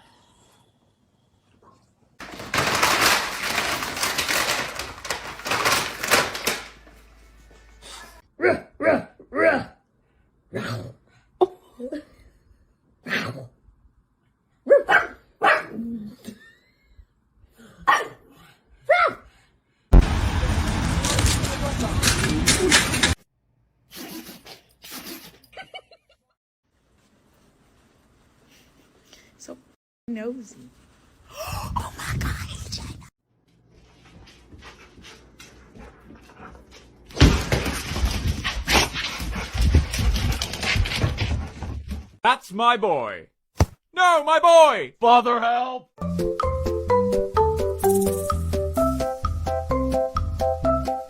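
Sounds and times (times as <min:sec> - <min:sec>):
dog barking: 0:14.6 - 0:15.8, 0:17.8 - 0:18.3, 0:18.9 - 0:19.2.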